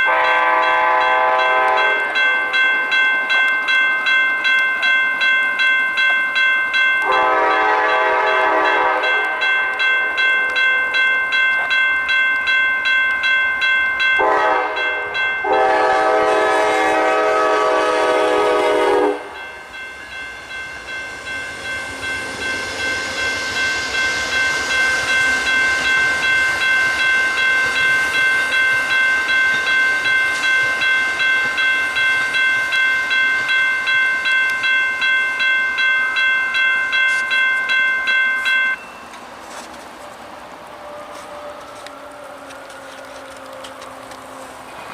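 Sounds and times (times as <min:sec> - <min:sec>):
train air horn: 0:00.0 - 0:02.2, 0:07.1 - 0:09.4, 0:14.2 - 0:19.4, 0:40.6 - 0:44.9
railroad crossing bell ringing: 0:00.0 - 0:39.8
train passing rumble: 0:00.0 - 0:44.9.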